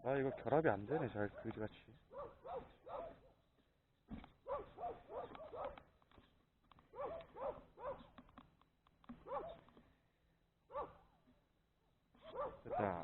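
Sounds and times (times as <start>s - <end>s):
dog whining and yipping: 7.0s - 8.1s, 9.2s - 9.6s, 12.2s - 13.0s.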